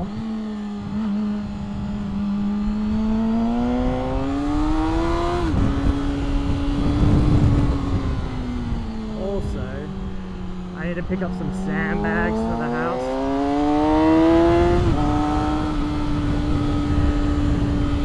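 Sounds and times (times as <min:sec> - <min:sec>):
motorcycle engine revving: 0:00.0 - 0:18.0
wind on microphone: 0:00.0 - 0:18.0.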